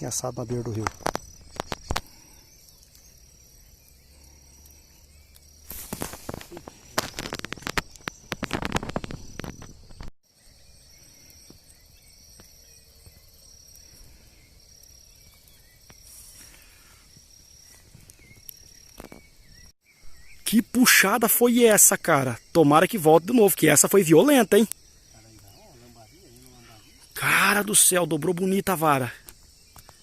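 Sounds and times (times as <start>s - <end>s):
insects chirping: 0.0s - 30.0s
loud crackling and clicking: 0.6s - 3.1s, 4.6s - 10.1s.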